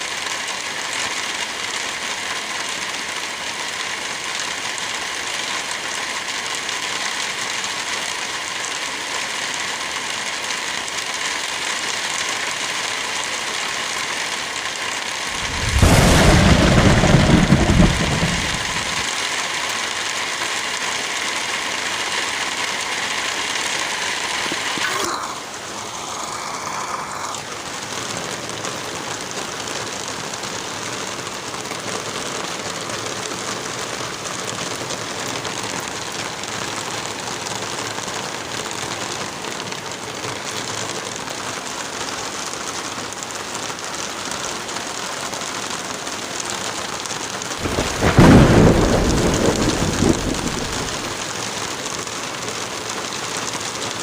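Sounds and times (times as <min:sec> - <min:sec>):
steady rain: 0:00.0 - 0:54.0
thunder rumbling: 0:15.3 - 0:19.1, 0:47.6 - 0:51.2.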